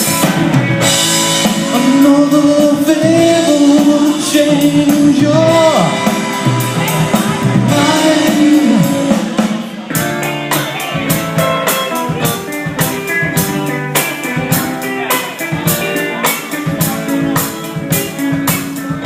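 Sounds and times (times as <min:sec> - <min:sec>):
rock band instrumental: 0:00.0 - 0:19.0.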